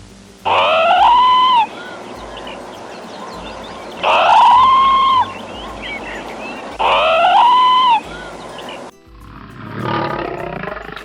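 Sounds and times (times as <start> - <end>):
animal's loud sliding call: 0.5 - 2.6, 3.3 - 8.2
faint high chirps: 0.5 - 9.0.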